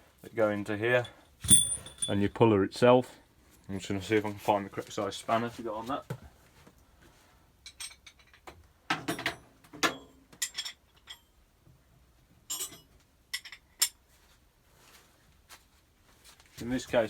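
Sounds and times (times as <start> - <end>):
metal spanners clinking: 1.4 - 2.3.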